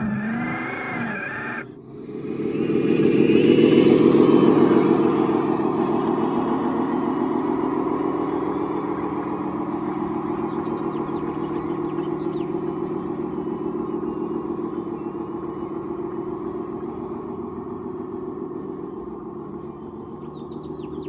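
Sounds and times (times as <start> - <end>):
rc machine mechanical drone: 0.0 - 21.0.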